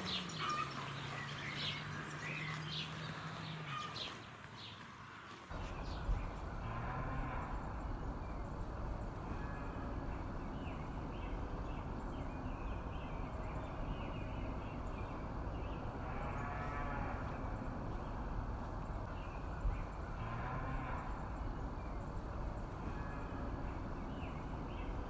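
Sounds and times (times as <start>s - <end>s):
steady background noise: 0.0s - 25.0s
calves mooing: 6.6s - 7.8s, 16.0s - 17.6s, 20.2s - 21.4s.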